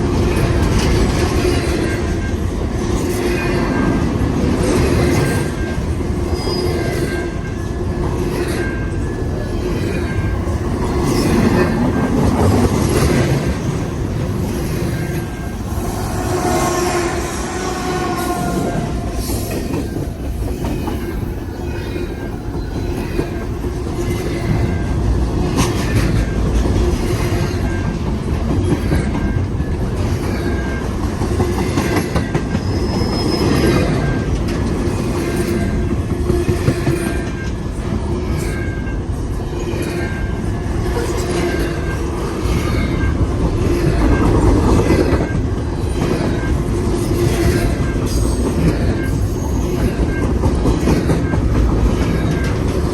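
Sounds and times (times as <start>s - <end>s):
train wheels clattering on rails: 0.0s - 17.4s, 18.0s - 52.9s
wheel squeal: 32.5s - 34.2s.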